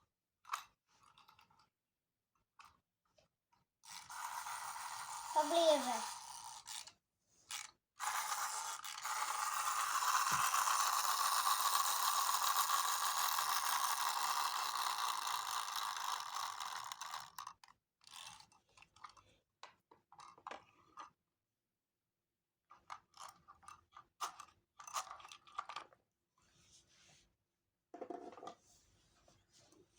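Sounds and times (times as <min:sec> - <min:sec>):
toy washing machine motor spinning: 0:03.8 - 0:19.2, 0:22.8 - 0:26.0.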